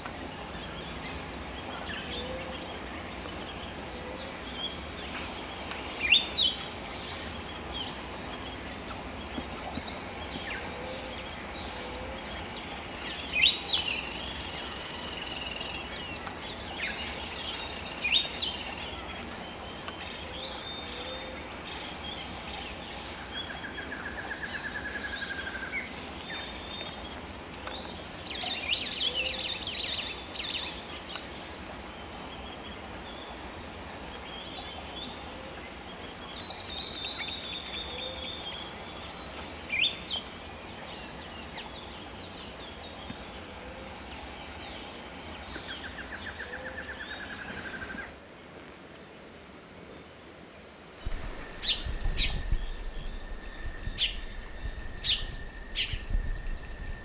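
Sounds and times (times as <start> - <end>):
birds chirping and whistling: 0.0 - 48.2, 51.0 - 57.0
background hiss: 0.0 - 57.0
buzzy bird trill: 51.0 - 57.0.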